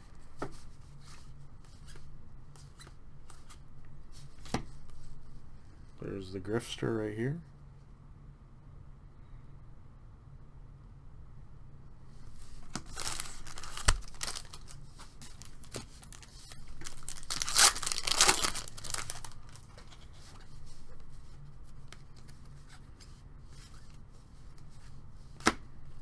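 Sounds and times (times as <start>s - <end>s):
wrapper tearing and crinkling: 12.4s - 20.0s
sharp wrapper snap: 12.6s - 19.8s.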